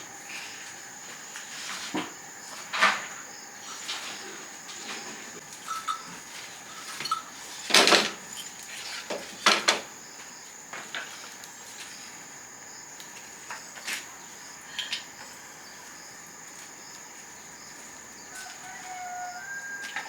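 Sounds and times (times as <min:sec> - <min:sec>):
insect chirring: 0:03.1 - 0:09.1
pots and dishes clattering: 0:05.6 - 0:08.5.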